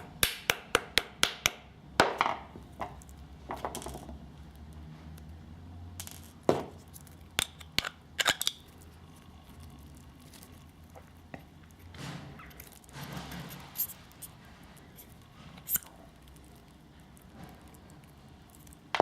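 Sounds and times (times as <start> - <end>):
metal parts clicking and knocking: 6.0 - 8.9, 10.2 - 16.4.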